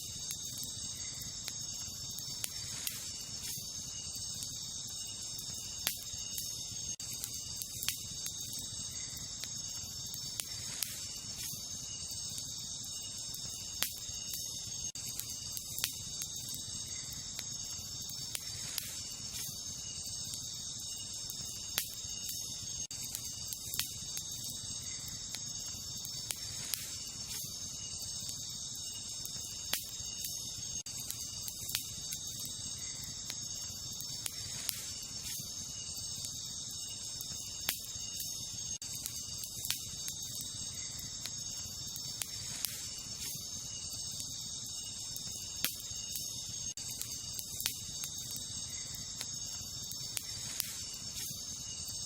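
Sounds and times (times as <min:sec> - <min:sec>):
campfire crackling and popping: 0:00.0 - 0:52.0
night insects trilling: 0:00.0 - 0:52.0.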